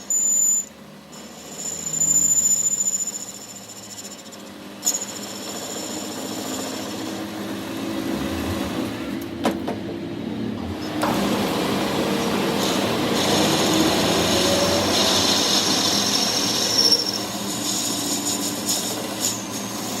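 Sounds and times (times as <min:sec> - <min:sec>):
machine running: 0:04.8 - 0:18.5.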